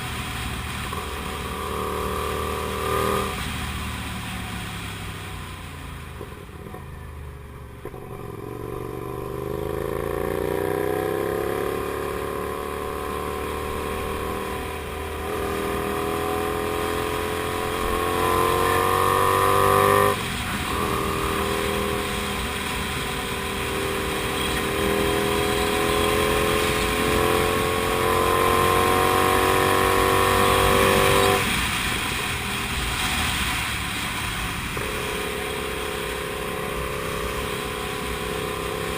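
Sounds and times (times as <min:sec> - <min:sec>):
motorcycle engine accelerating: 0:00.0 - 0:05.0, 0:05.8 - 0:38.9.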